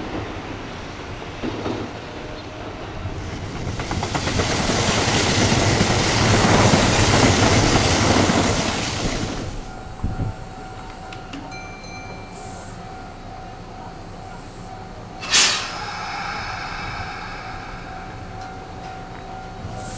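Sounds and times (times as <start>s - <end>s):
electric train rushing by: 0.0s - 10.8s, 14.9s - 19.9s.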